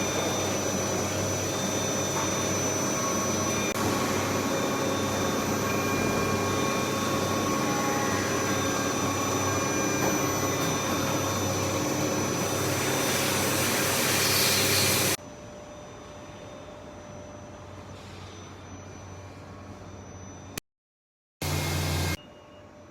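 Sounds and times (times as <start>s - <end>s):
machine loud steady hiss: 0.0s - 15.2s, 21.4s - 22.2s
high steady machine whines: 0.0s - 20.6s, 21.4s - 22.9s.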